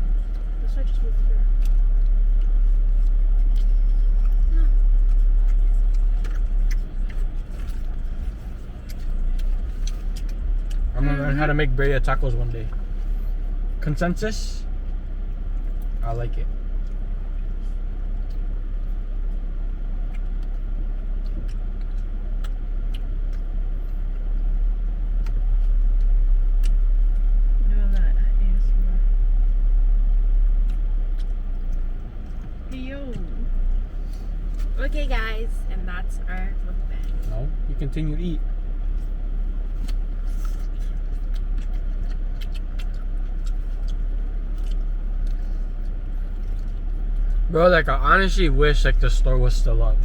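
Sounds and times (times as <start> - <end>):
person chewing food: 0.0 - 0.6, 1.4 - 11.4, 14.7 - 27.6, 30.4 - 32.7, 38.5 - 47.5
steady low rumble: 0.0 - 50.0.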